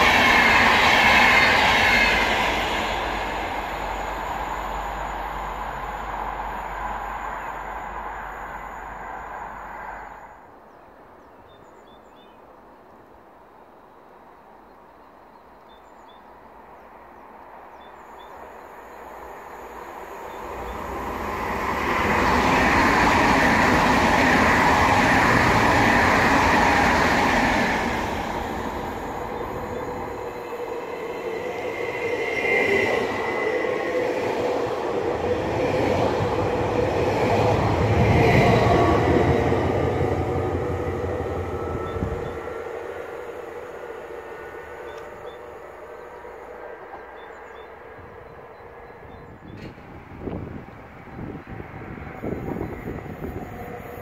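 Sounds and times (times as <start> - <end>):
steady high tone: 0.0 - 10.3
train rushing past on rails: 0.0 - 12.4, 15.6 - 54.0
electric commuter train approaching: 0.0 - 54.0.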